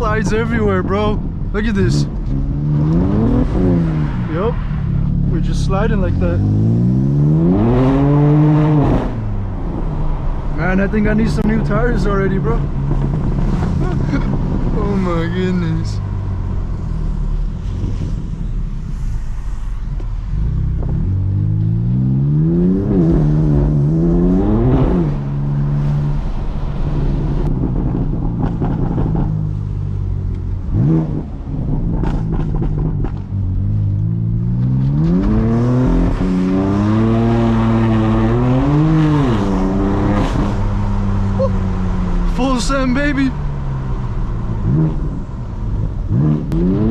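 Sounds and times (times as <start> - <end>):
car engine revving: 0.0 - 46.9.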